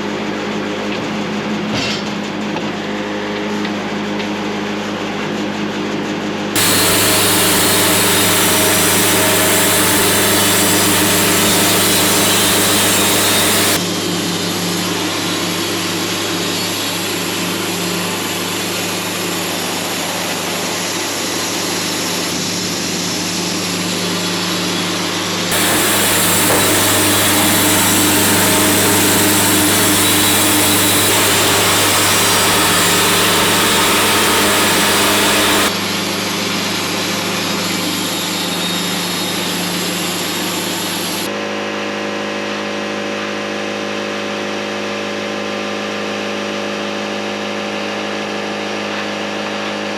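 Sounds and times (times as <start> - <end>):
saw blade cutting log hiss: 6.6 - 13.8, 23.3 - 35.8
band sawmill engine hum: 6.6 - 36.0.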